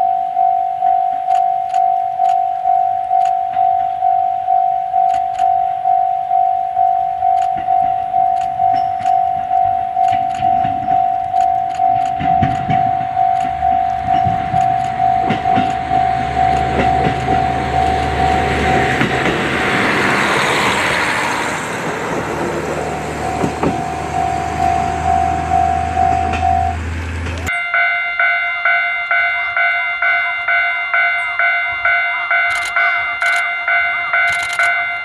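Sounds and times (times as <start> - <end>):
level crossing bell ringing: 0.0 - 19.0, 23.2 - 26.8, 27.5 - 35.0
train passing: 0.0 - 35.0
wheel clicks on rail joints: 7.0 - 19.9, 22.1 - 27.5
low engine drone: 8.1 - 27.5.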